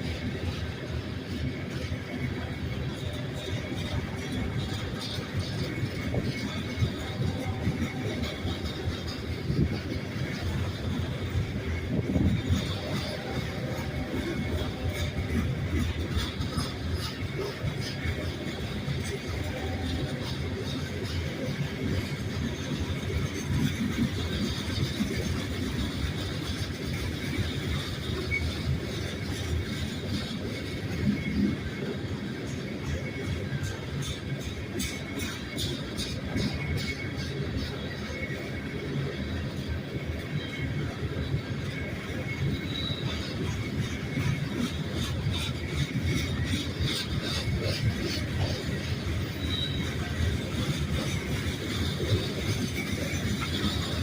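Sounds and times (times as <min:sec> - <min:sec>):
freight train wheels rumbling: 0:00.0 - 0:54.0
high wheel squeal: 0:40.1 - 0:54.0.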